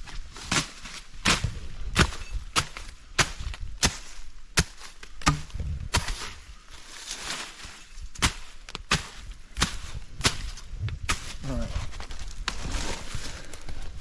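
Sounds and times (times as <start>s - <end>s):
blade chopping wood: 0.4s - 6.4s, 8.2s - 11.4s.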